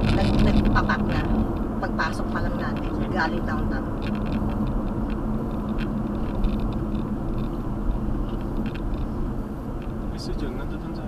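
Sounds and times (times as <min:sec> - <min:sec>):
car cabin road and engine noise: 0:00.0 - 0:11.0.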